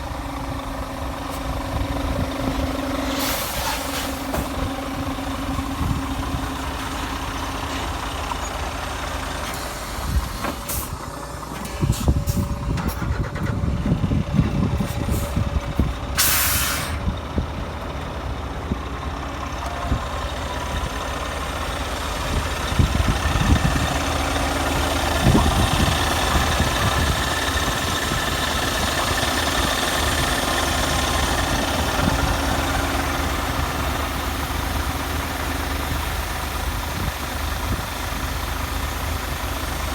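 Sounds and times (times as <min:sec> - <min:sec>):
truck diesel engine running: 0:00.0 - 0:39.9
air brakes hiss: 0:03.1 - 0:04.6, 0:16.2 - 0:17.1.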